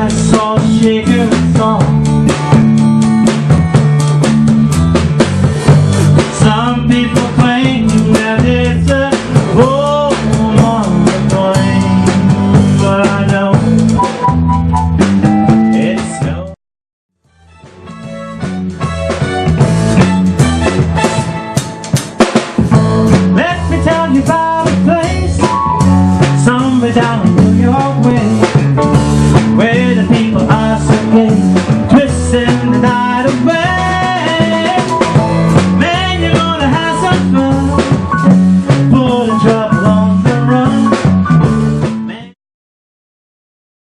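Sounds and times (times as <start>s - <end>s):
band playing: 0.0s - 16.6s, 17.2s - 42.4s.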